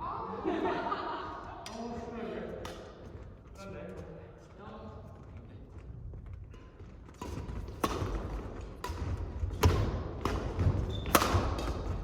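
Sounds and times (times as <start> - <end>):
racket striking shuttlecock: 7.2 - 12.0
shoes squeaking on court floor: 10.4 - 12.0.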